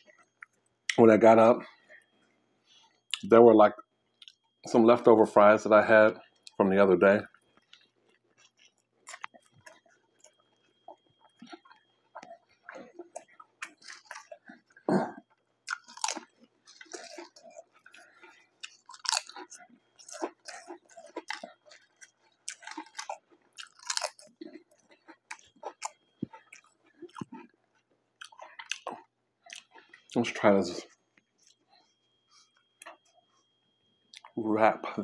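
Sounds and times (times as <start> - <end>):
person chewing a sandwich: 0.0 - 1.0, 1.6 - 3.2, 3.8 - 4.6, 6.2 - 6.6, 7.2 - 34.4
potato chips crunching: 7.3 - 30.4.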